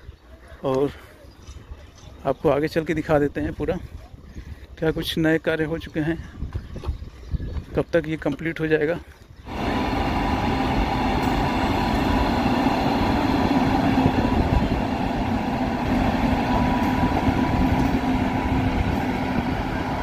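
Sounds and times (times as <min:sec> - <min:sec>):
electric locomotive hum: 0:09.4 - 0:20.0
train wheels rumbling on rails: 0:09.4 - 0:20.0.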